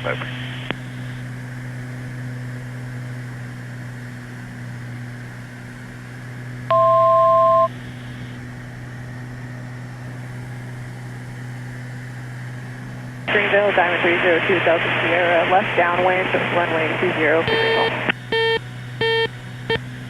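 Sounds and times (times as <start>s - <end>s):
piston aircraft engines droning: 0.0s - 20.0s
two-note electronic beep: 6.7s - 7.7s, 17.5s - 19.3s.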